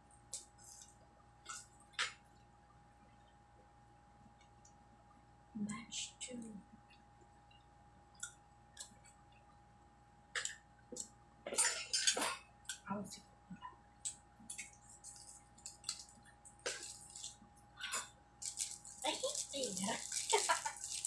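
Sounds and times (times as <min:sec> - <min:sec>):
utensils and food containers handled: 0:14.5 - 0:21.0.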